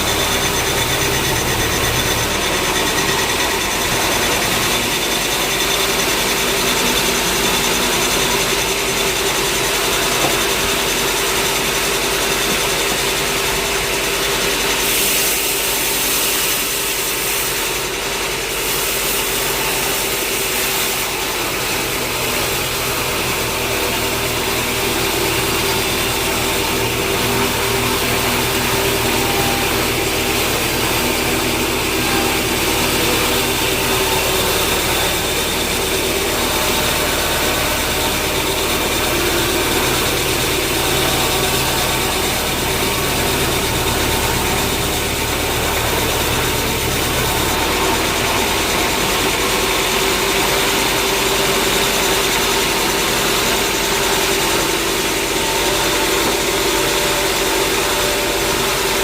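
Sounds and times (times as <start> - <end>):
machine engine humming: 0.0 - 15.8, 19.4 - 59.0
deep low drone: 22.3 - 50.2.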